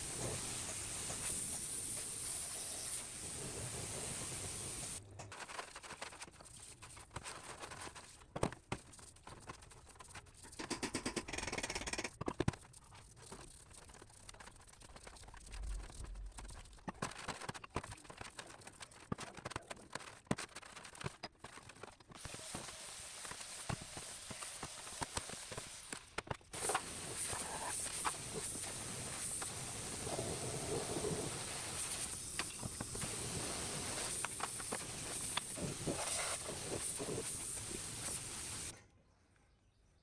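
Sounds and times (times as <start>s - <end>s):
steady hiss: 0.0s - 5.0s, 22.2s - 26.0s, 26.6s - 38.7s.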